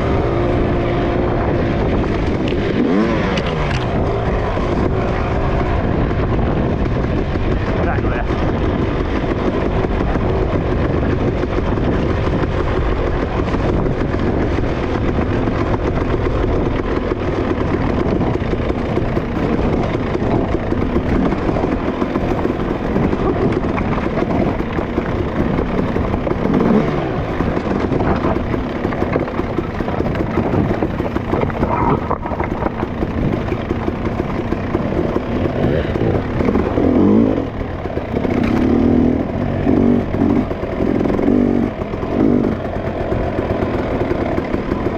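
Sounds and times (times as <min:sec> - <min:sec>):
dirt bike engine running: 0:00.0 - 0:44.9.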